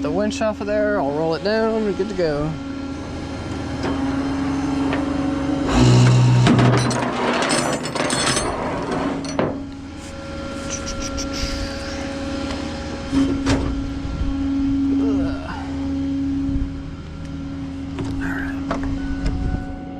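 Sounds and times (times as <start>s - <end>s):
tow truck engine running: 0.0s - 19.9s
metal chain clatter: 6.7s - 9.5s.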